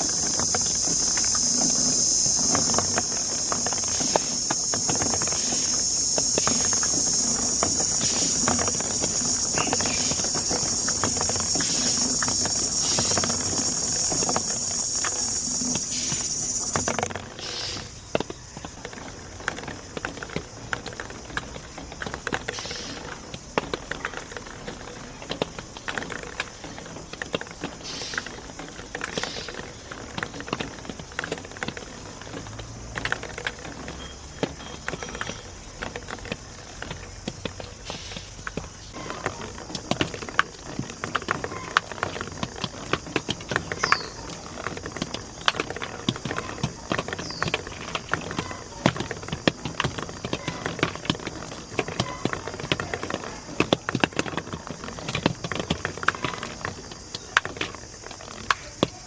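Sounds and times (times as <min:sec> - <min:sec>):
marbles rolling and clacking on track: 0:00.0 - 0:17.3.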